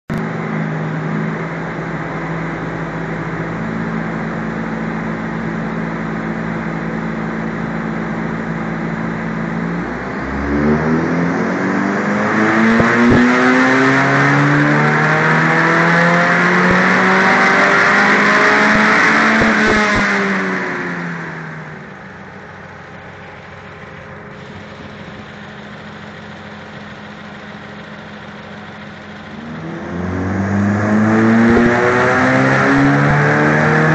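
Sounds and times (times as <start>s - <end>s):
car engine revving on dynamometer: 9.0s - 22.0s, 24.3s - 33.9s.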